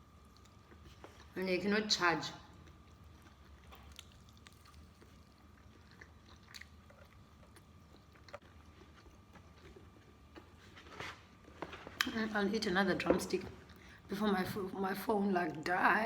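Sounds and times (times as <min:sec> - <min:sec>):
biting and chewing food: 0:02.4 - 0:12.2.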